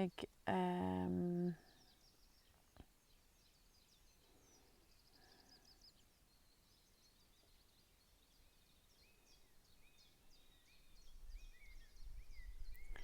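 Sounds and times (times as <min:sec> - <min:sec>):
low whistled bird notes: 0:09.0 - 0:13.0.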